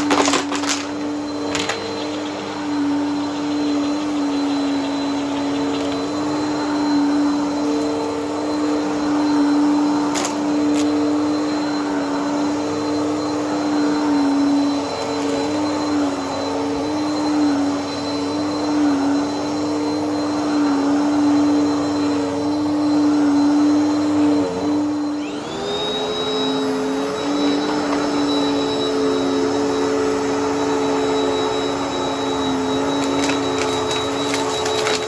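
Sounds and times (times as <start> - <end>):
debris clicks in vacuum: 0.0 - 2.0, 10.1 - 11.0, 33.0 - 35.0
vacuum cleaner running: 0.0 - 35.0.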